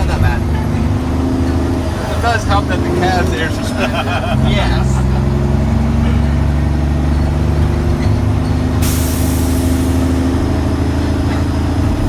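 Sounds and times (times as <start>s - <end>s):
diesel truck engine running: 0.0s - 12.0s
air brakes hissing: 8.8s - 10.5s.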